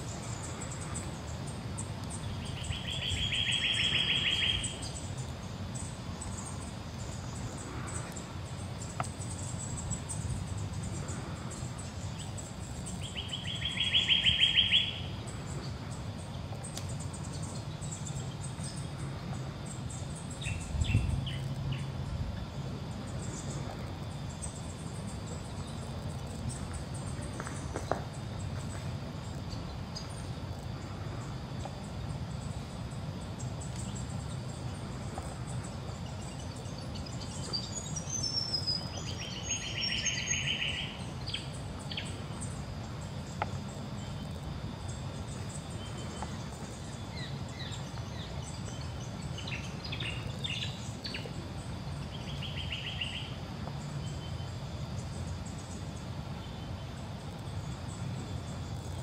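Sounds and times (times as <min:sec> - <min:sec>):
insects buzzing: 0:00.0 - 0:59.0
bird trilling: 0:13.2 - 0:15.1.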